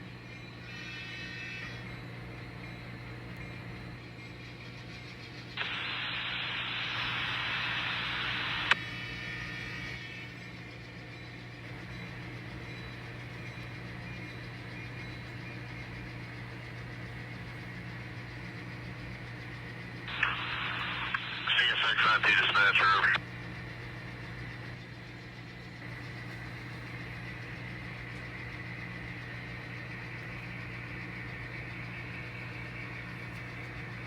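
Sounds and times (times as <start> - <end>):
low hum: 0.0 - 34.0
radio static hiss: 5.4 - 10.3, 20.0 - 24.8.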